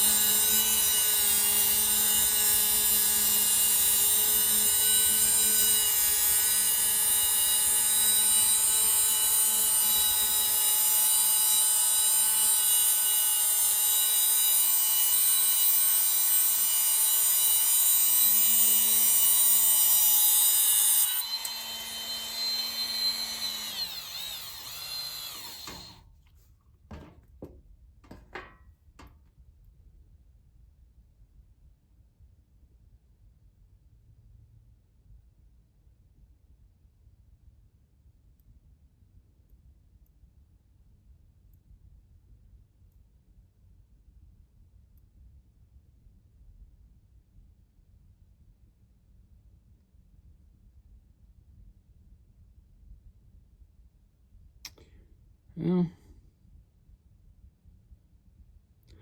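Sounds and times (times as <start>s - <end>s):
electric power tool running: 0.0s - 26.0s.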